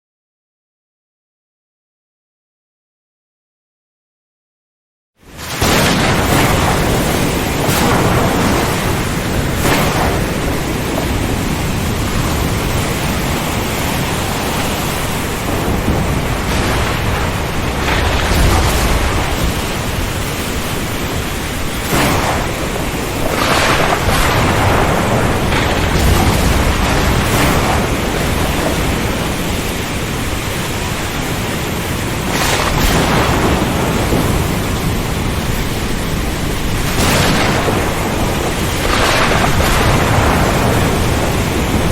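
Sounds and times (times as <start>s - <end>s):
heavy rain hissing: 5.3s - 41.9s
thunder rumbling: 5.4s - 41.9s.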